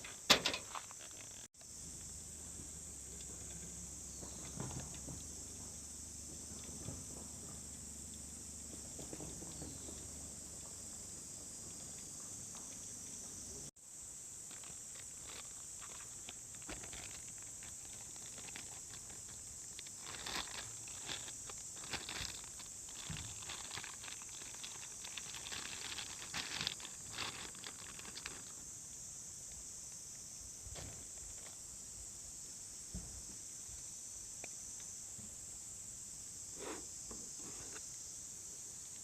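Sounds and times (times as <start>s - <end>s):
insects trilling: 0.0s - 39.0s.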